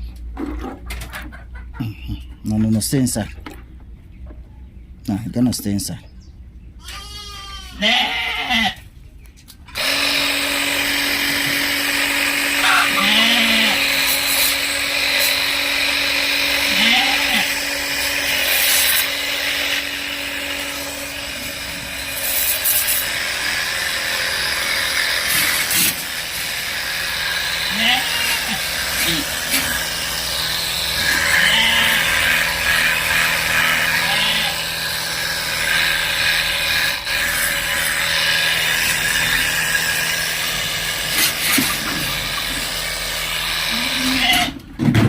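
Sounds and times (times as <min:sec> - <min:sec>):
small motor running: 0:09.7 - 0:44.4
chemical sprayer hissing: 0:09.8 - 0:16.8, 0:17.4 - 0:31.4.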